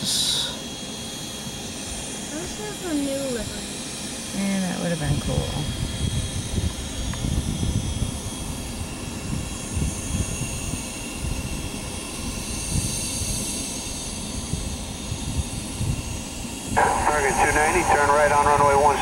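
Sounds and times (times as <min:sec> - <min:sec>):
jet engines rumbling: 0:00.0 - 0:12.4, 0:16.8 - 0:19.0.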